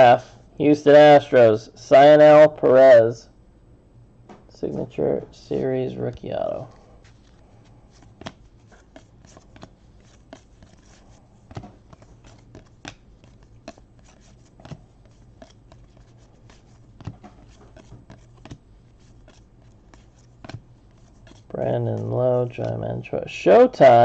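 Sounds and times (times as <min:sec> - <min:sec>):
trading cards snapping and rustling: 0:07.1 - 0:22.8.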